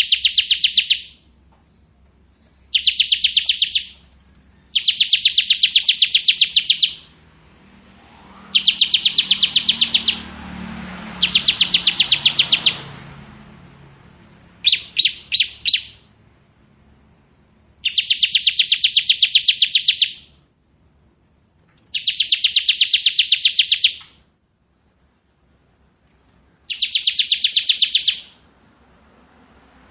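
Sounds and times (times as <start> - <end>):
bird singing rapid trill: 0.0 - 1.2, 2.5 - 13.2, 14.6 - 20.4, 21.9 - 24.1, 26.6 - 28.4.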